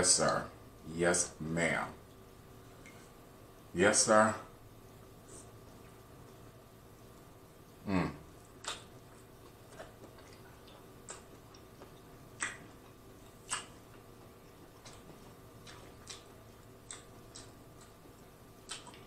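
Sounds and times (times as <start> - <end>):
wet mouth smacks while chewing: 8.4 - 19.0.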